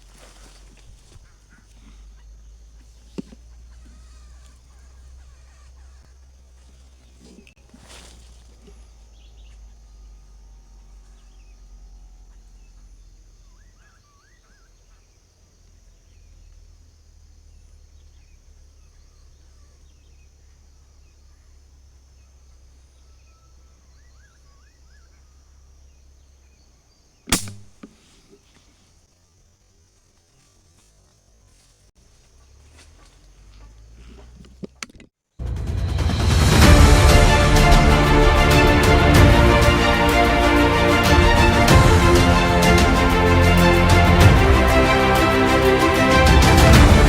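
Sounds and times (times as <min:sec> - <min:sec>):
faint bird chirps: 0:00.0 - 0:29.5
air rifle shot: 0:27.3 - 0:28.0
low rumble: 0:35.4 - 0:47.0.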